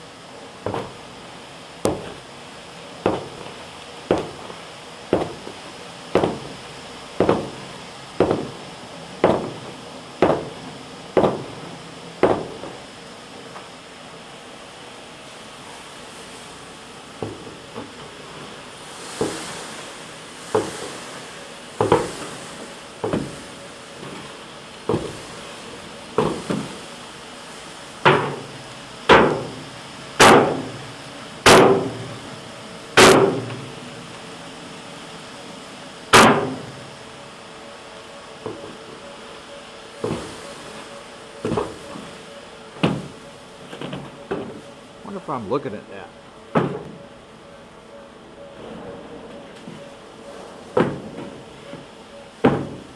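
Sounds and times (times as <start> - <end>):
heavy knocks on steel: 0.6 - 1.0, 1.8 - 2.2, 3.0 - 5.6, 6.2 - 6.6, 7.2 - 8.6, 9.2 - 11.6, 12.2 - 12.8, 21.8 - 22.2, 23.0 - 23.4, 28.0 - 28.5, 29.1 - 29.6, 30.2 - 30.8, 31.4 - 32.1, 33.0 - 33.6, 36.1 - 36.7, 52.4 - 52.9.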